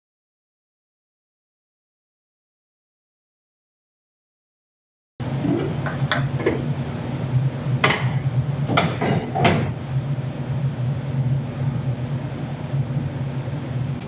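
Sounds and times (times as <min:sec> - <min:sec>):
steady low hum: 0:05.2 - 0:14.0.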